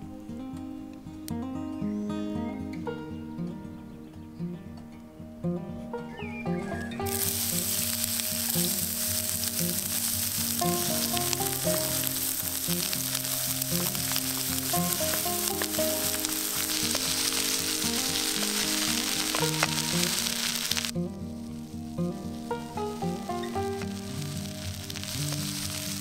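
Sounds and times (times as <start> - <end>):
background music: 0.0 - 26.0
vegetables sizzling in hot oil: 7.1 - 26.0.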